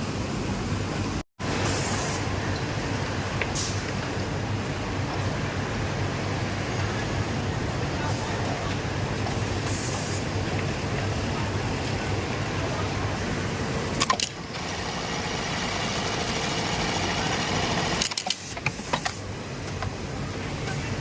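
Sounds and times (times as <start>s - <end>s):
sewing machines humming: 10.6s - 18.2s.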